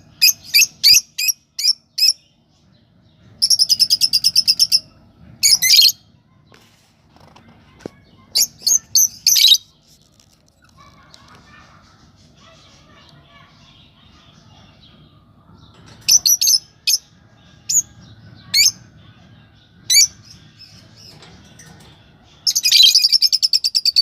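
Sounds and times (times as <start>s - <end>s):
lovebirds chirping: 7.7s - 24.0s.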